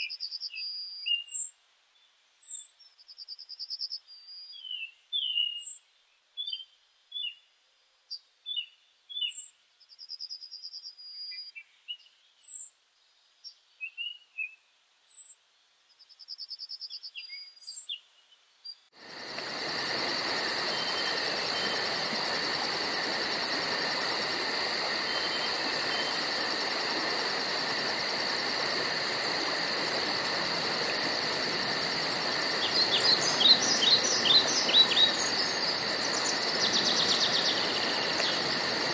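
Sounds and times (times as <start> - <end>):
insect chorus hissing: 19.0 - 38.9.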